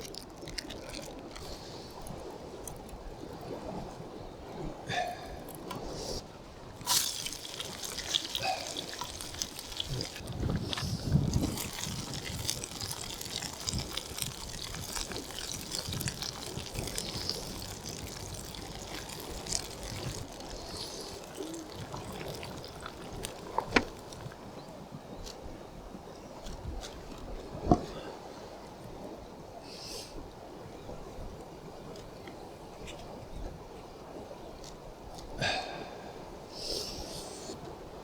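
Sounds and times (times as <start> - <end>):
water trickling and sloshing: 0.0 - 29.6.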